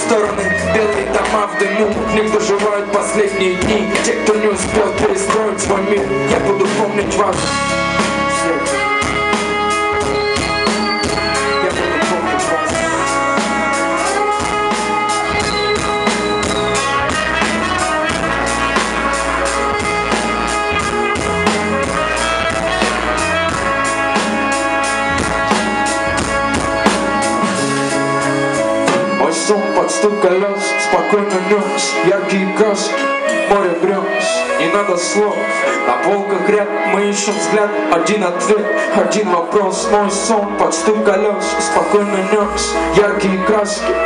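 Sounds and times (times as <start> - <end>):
drum kit beat: 0.0 - 31.2
live band playing: 0.0 - 44.0
high sliding notes: 1.8 - 37.8.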